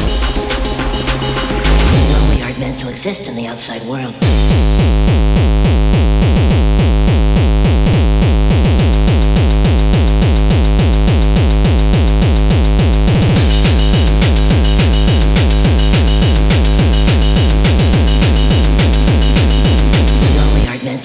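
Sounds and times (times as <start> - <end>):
distorted kick drum: 0.0 - 2.7, 4.2 - 20.7
synths: 0.0 - 5.6, 12.7 - 21.0.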